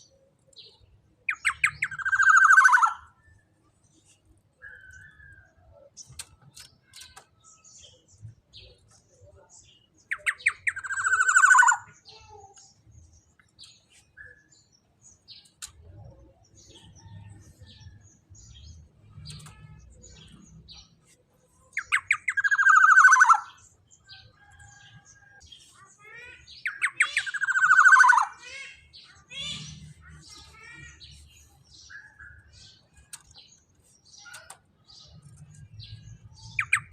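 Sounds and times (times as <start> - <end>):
bird calling with rasping note: 0.0 - 3.4, 10.0 - 12.2, 16.9 - 36.9.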